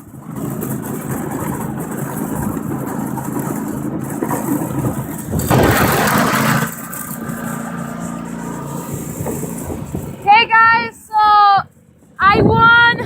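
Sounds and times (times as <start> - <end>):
lawn tractor engine running: 0.0 - 12.9
loud rushing noise: 4.0 - 10.8.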